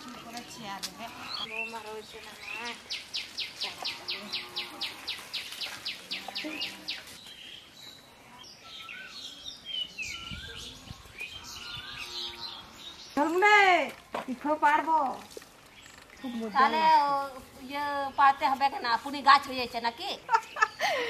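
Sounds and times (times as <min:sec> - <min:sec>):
birds whistling calls: 0:00.0 - 0:13.4
birds chirping sharply: 0:01.2 - 0:13.7.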